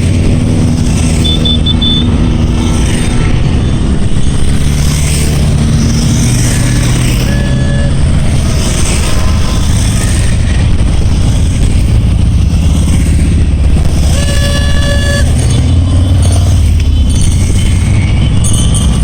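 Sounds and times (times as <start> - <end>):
motorcycles riding past: 0.0 - 19.0
vehicle horn tooting: 1.2 - 2.2, 7.1 - 8.3, 14.1 - 15.8.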